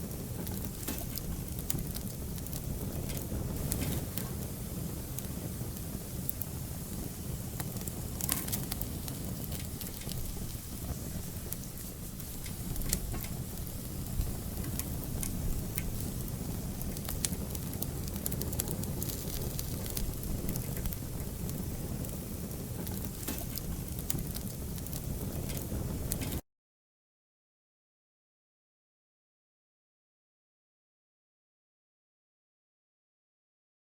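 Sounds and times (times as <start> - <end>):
fire crackles and pops: 0.0 - 26.4
wood fire burning: 0.0 - 26.4.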